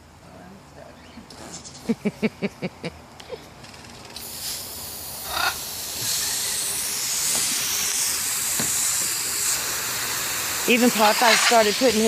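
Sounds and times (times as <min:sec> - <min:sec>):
water spray hissing: 0:04.2 - 0:12.0.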